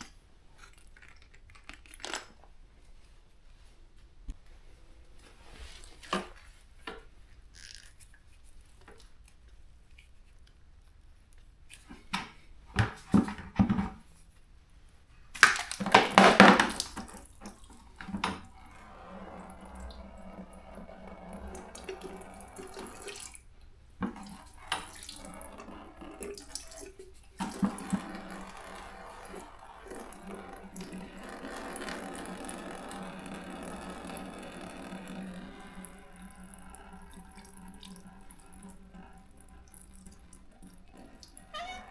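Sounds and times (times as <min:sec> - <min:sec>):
water running: 0:15.3 - 0:41.9.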